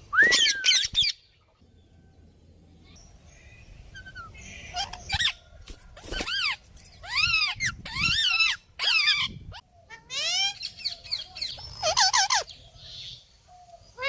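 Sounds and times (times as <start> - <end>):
parrot calling: 4.0 - 5.4, 6.3 - 12.5.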